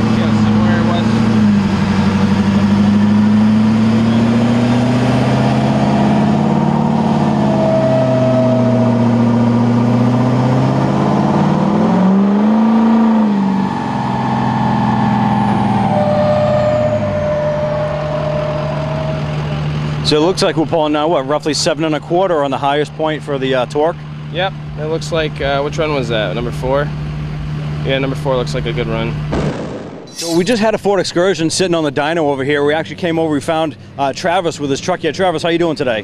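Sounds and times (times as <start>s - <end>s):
diesel engine running under load: 0.0s - 36.0s.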